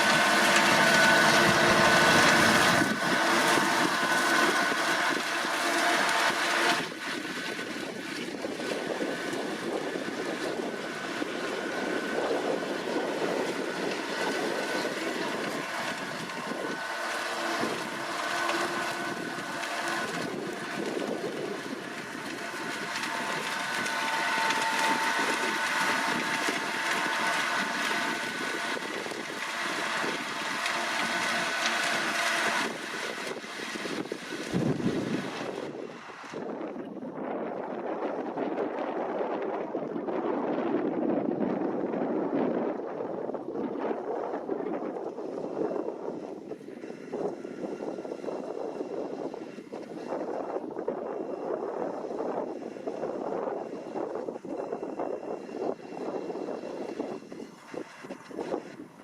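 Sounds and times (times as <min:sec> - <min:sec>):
tractor engine droning under load: 0:00.0 - 0:59.0
wind buffeting microphone: 0:00.0 - 0:59.0.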